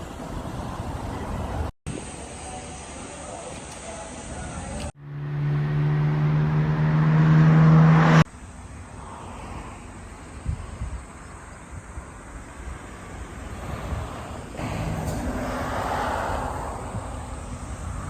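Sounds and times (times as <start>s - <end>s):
road noise: 0.0s - 18.0s
vehicle engine hum: 3.6s - 18.0s.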